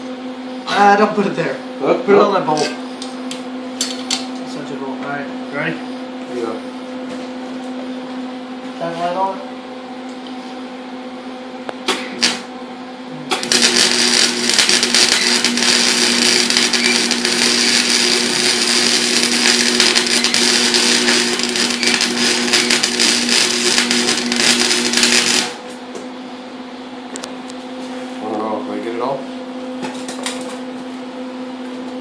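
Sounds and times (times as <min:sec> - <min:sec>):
steady hum: 0:00.0 - 0:32.0
welding arc crackling: 0:12.2 - 0:12.5, 0:13.3 - 0:25.8.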